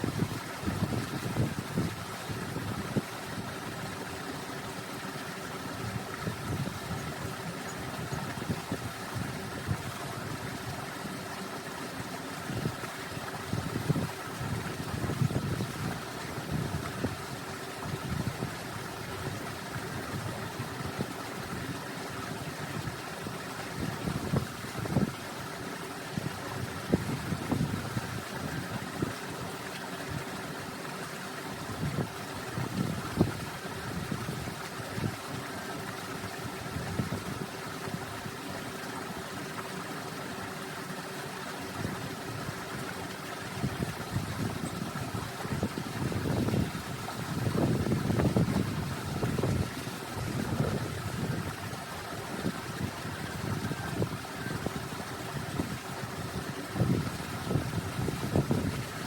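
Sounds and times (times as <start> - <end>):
wind gusting on microphone: 0.0 - 3.9, 12.5 - 21.7, 26.1 - 29.2, 43.5 - 59.0
steady mechanical hum: 0.0 - 59.0.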